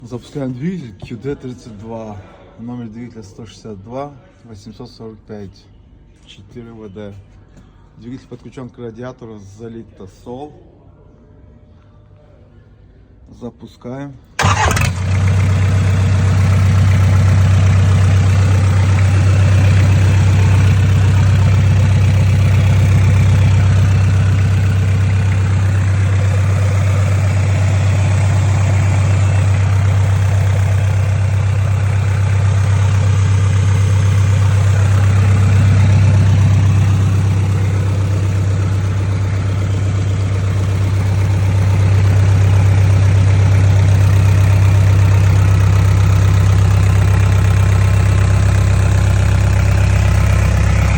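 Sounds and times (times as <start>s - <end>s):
diesel engine idling: 14.4s - 50.9s.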